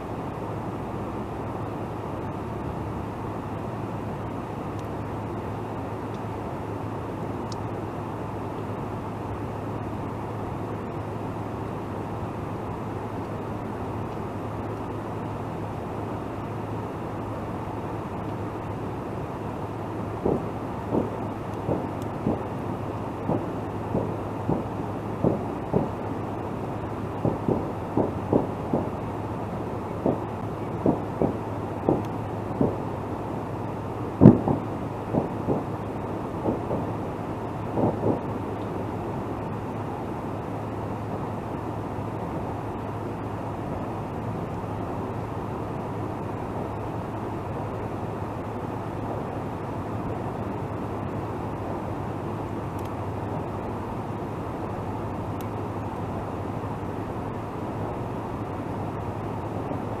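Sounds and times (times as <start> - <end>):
low even hum: 0.0 - 60.0
steady background hiss: 0.0 - 60.0
distant fireworks bangs: 20.2 - 22.6, 23.2 - 26.0, 27.1 - 29.0, 29.9 - 32.9, 34.2 - 37.0, 37.7 - 38.3
faint tick: 52.8 - 53.0.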